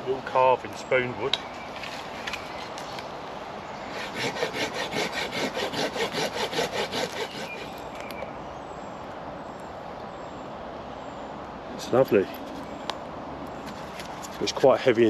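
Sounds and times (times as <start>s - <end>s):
hand saw cutting branch: 3.9s - 7.8s.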